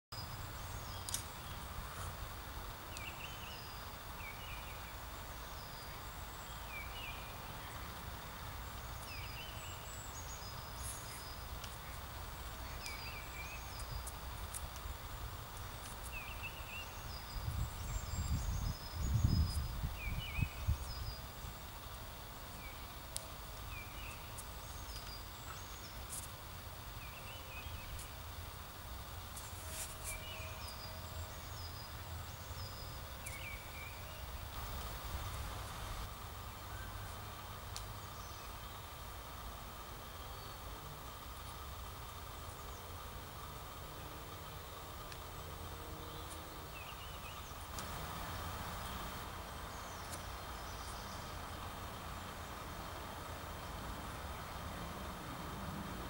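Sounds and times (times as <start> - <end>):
birds chirping: 0.2 - 14.6, 43.9 - 54.6
wind rumble on microphone: 13.1 - 21.4.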